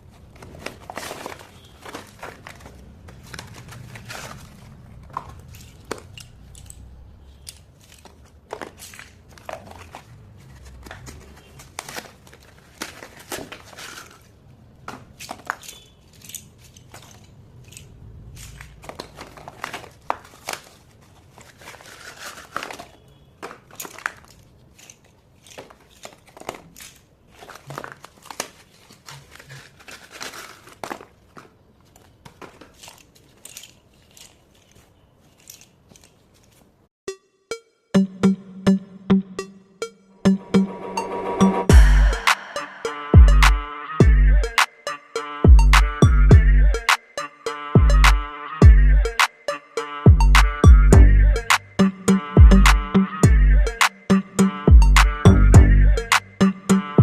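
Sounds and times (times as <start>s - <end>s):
packaging crinkling and tearing: 0.0s - 6.9s, 7.6s - 36.8s.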